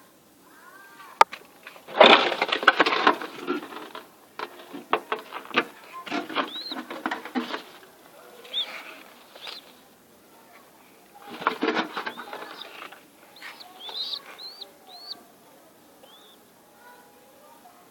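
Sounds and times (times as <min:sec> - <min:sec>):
birds clicking and fluttering: 0:01.5 - 0:09.8, 0:11.2 - 0:15.3, 0:16.0 - 0:17.0
short high bird chirps: 0:13.4 - 0:15.2.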